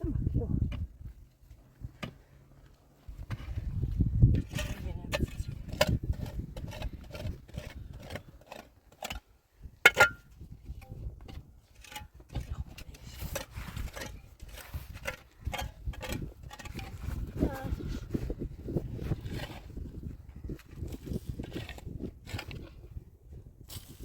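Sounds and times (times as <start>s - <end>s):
wood scraping: 1.5s - 9.3s.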